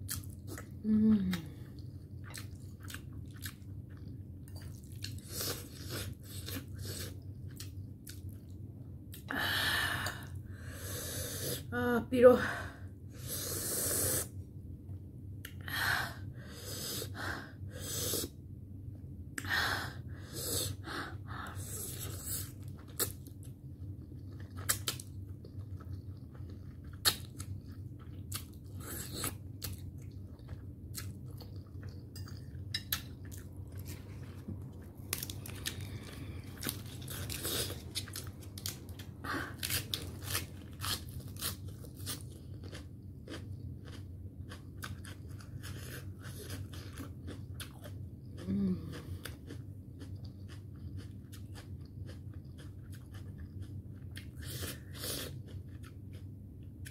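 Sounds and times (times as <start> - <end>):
mouth chewing noodles: 0.1 - 8.5, 20.2 - 56.9.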